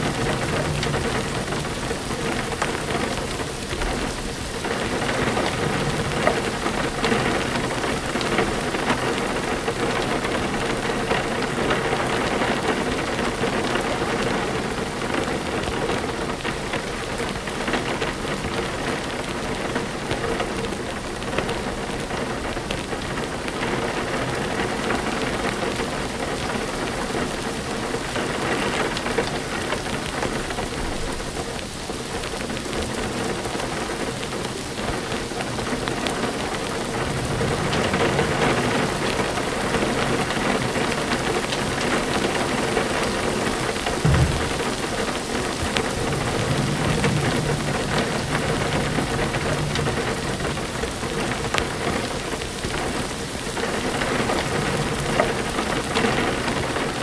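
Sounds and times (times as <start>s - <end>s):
low thunder: 0.0s - 27.3s, 32.8s - 57.0s
steady rain falling: 0.0s - 57.0s.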